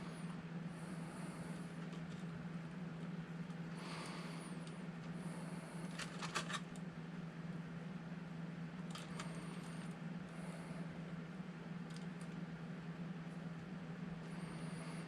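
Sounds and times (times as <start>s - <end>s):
low hum: 0.0s - 15.0s
plastic parts clicking and scraping: 5.8s - 6.7s.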